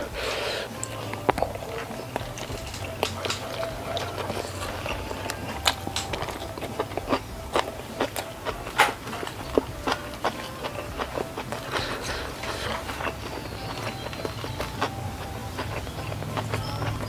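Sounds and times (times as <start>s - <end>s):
close chewing of food: 0.0s - 17.0s
wet mouth clicks: 0.0s - 17.0s.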